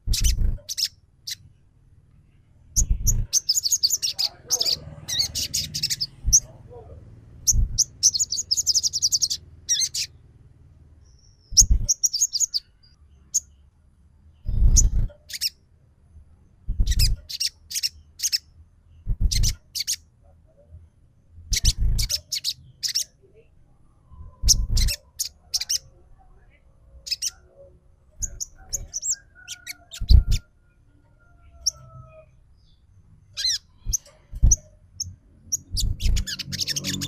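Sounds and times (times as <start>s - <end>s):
bird chirps and trills: 0.0s - 1.6s, 2.7s - 10.3s, 11.0s - 13.7s, 14.3s - 15.6s, 16.6s - 20.1s, 21.5s - 23.2s, 24.1s - 26.0s, 27.0s - 30.5s, 31.4s - 37.0s.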